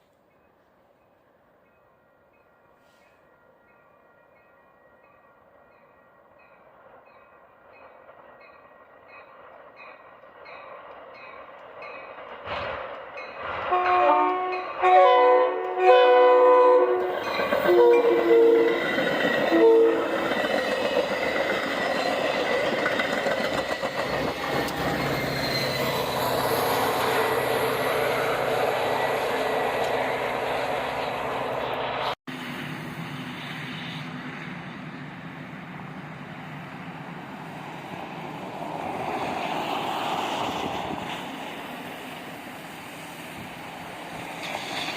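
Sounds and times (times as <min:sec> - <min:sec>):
train rumbling past on rails: 0:00.0 - 0:44.9
train horn blasts: 0:13.7 - 0:20.2.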